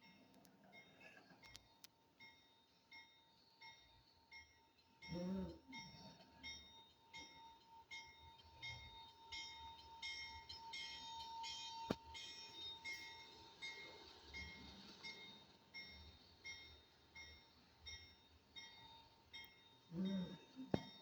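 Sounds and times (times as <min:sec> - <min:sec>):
freight train rumbling by: 0:04.6 - 0:21.0.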